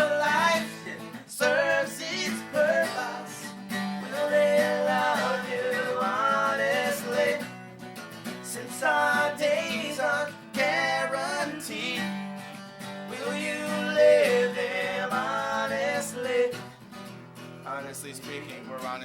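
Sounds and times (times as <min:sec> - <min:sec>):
person singing: 0:00.0 - 0:07.4, 0:08.5 - 0:12.2, 0:13.1 - 0:16.6
strummed acoustic guitar: 0:00.0 - 0:19.0.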